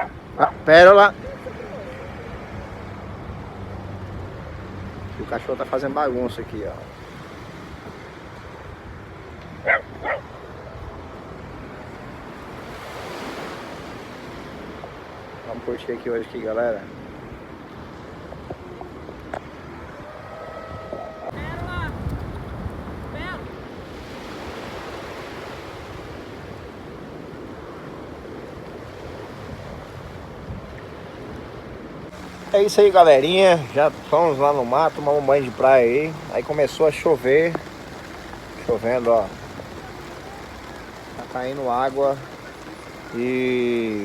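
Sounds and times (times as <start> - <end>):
dog barking: 0.0 - 0.6, 9.6 - 10.3
wind buffeting microphone: 0.0 - 15.6, 16.9 - 44.0
surf washing: 0.0 - 44.0.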